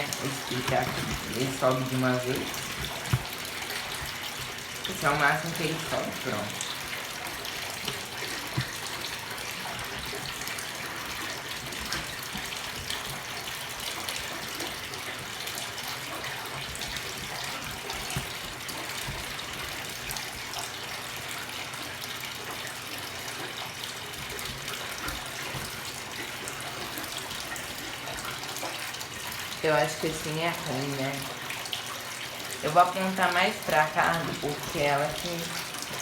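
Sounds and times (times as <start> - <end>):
water running into washing machine: 0.0 - 36.0.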